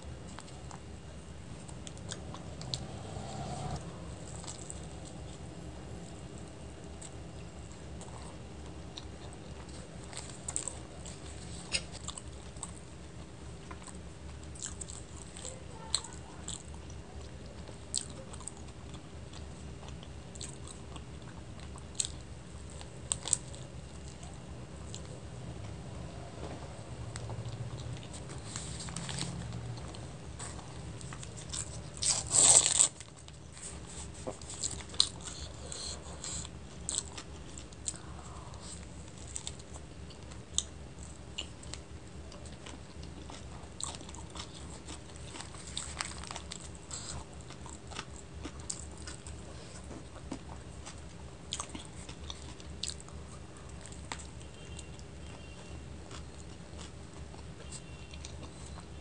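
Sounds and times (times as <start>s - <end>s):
chewing with wet mouth clicks: 6.4s - 25.7s, 27.1s - 59.0s
crunchy bite: 31.0s - 33.2s.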